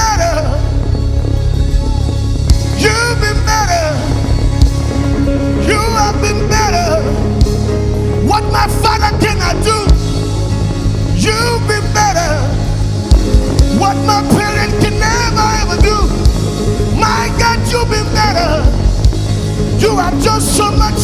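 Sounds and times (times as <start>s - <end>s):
live gospel band: 0.0s - 21.0s
people singing: 13.7s - 21.0s.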